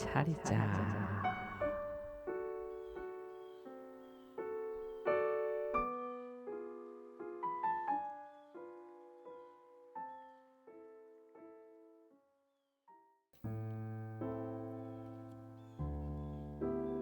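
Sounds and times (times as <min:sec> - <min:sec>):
gentle solo piano melody: 0:01.2 - 0:12.1, 0:13.5 - 0:17.0.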